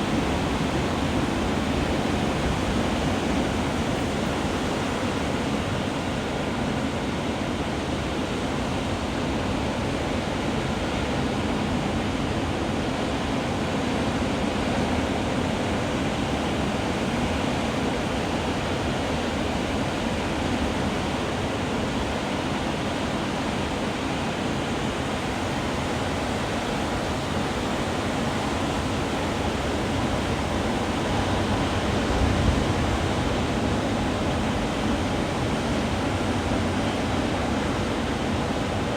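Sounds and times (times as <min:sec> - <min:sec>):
surf waves breaking: 0:00.0 - 0:09.3, 0:21.0 - 0:38.9.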